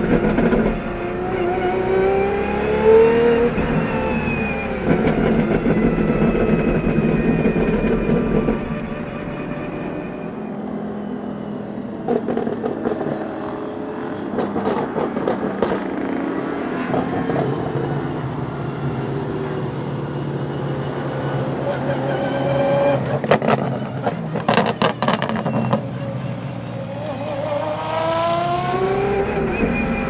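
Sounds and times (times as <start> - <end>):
sharp clicks and knocks: 0.0 - 0.9
car engine running: 0.0 - 10.4.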